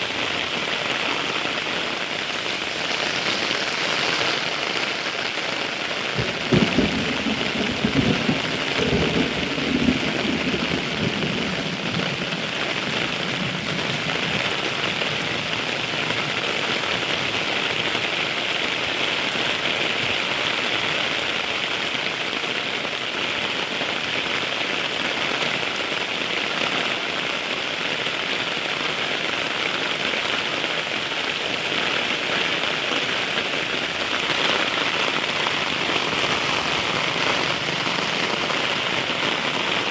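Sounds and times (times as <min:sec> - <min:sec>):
heavy rain: 0:00.0 - 0:39.9
thunder cracking and rumbling: 0:06.1 - 0:16.3, 0:33.9 - 0:39.9.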